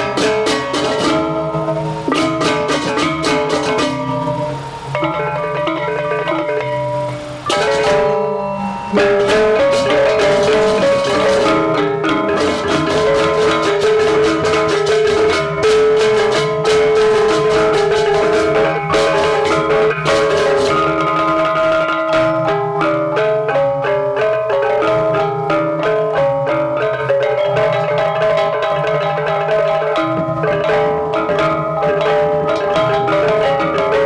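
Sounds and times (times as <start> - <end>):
drums: 0.0 - 34.0
ringing tuned metal percussion: 0.0 - 34.0.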